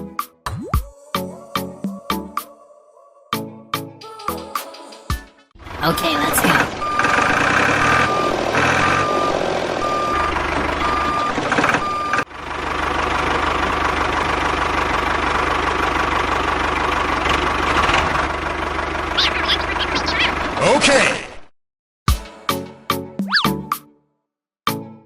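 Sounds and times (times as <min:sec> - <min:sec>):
engine-like drone with low hum: 0:05.6 - 0:20.7
engine noise: 0:05.6 - 0:21.0
reversing alarm beeping: 0:05.8 - 0:12.2.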